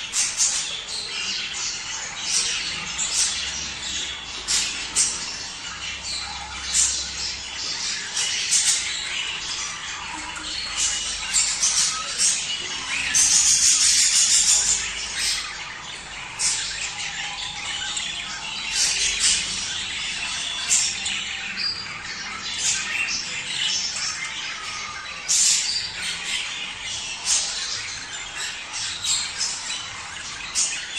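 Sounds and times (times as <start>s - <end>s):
budgerigars chattering and warbling: 0.0s - 30.9s.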